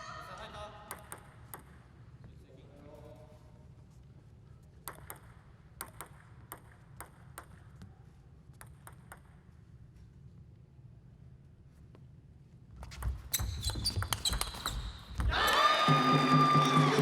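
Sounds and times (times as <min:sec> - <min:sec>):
table tennis ball clicking: 0:04.9 - 0:07.6, 0:08.6 - 0:09.4.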